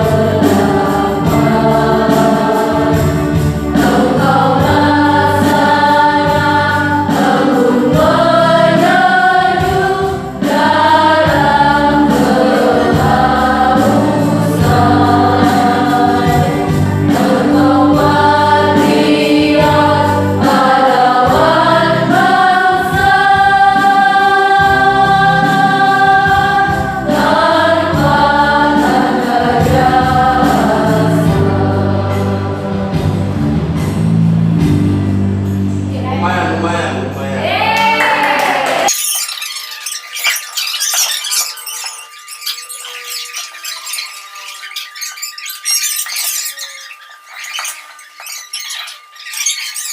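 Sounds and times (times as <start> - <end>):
choir singing slow song: 0.0 - 33.9.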